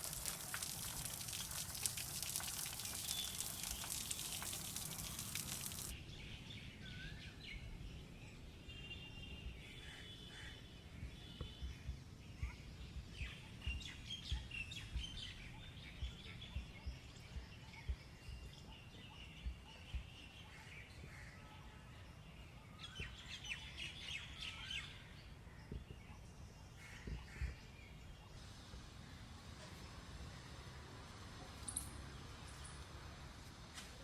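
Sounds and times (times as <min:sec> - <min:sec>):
small birds twittering: 0:00.1 - 0:05.9.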